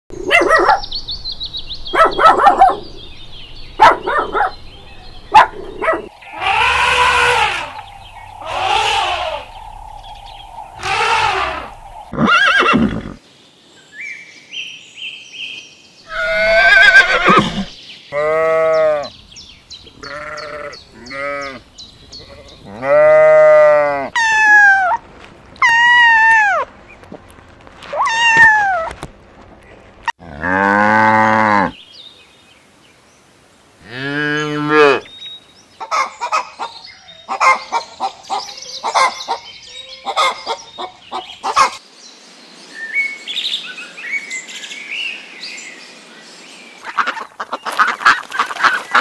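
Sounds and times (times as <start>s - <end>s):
farm animal calls: 1.8s - 13.2s, 16.1s - 19.1s, 19.9s - 21.6s, 35.8s - 41.8s, 46.8s - 49.0s
bleating: 6.3s - 9.5s, 16.1s - 19.1s, 20.0s - 21.6s, 22.2s - 24.1s.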